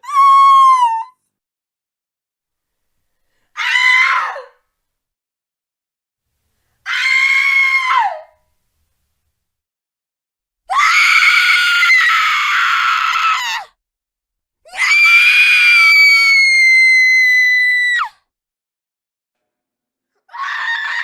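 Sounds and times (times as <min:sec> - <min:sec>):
girl screaming: 0:00.0 - 0:01.1, 0:14.7 - 0:18.1, 0:20.3 - 0:21.0.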